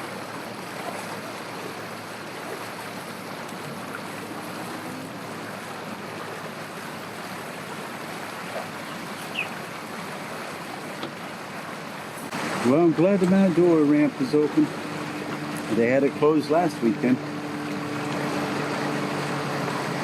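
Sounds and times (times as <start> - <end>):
open-air noise: 0.0 - 20.0
short bird chirps: 8.9 - 9.6.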